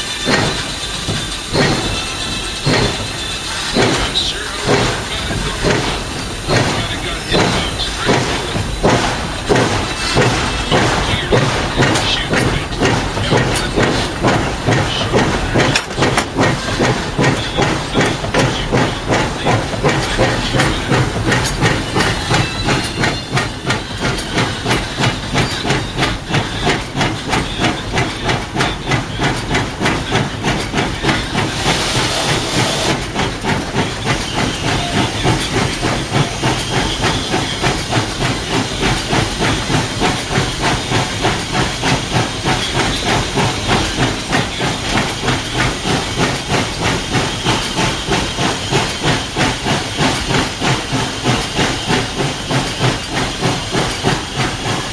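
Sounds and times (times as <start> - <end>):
steam hissing: 0.0 - 54.9
steam locomotive chuffing: 0.0 - 54.9.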